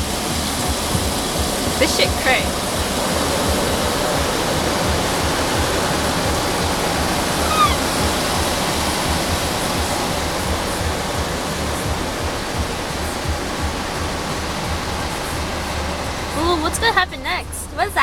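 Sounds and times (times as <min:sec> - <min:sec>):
car wash water spraying: 0:00.0 - 0:18.0
short falling squeak: 0:07.4 - 0:07.9.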